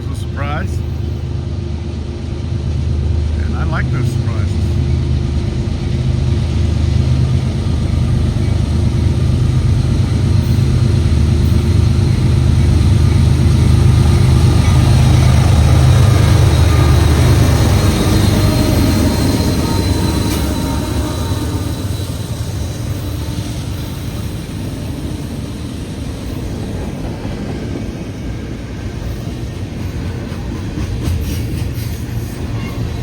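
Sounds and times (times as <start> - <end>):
train cars rolling: 0.0 - 33.0
train engine rumble: 0.0 - 33.0
faint high squeal: 16.4 - 24.3.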